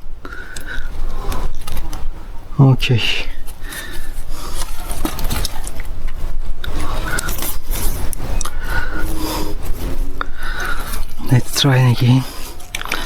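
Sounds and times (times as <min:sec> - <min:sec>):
plastic pipe scraping and clicking: 0:03.4 - 0:13.0.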